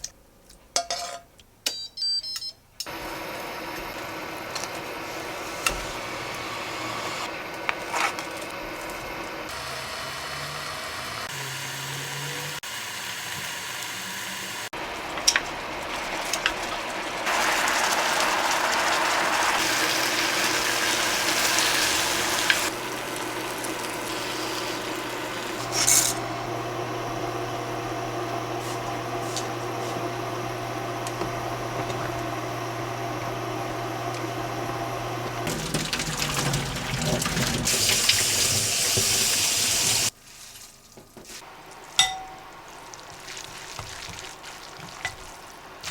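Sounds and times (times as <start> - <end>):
running water or sizzling hiss: 10.3 - 26.6, 35.4 - 45.9.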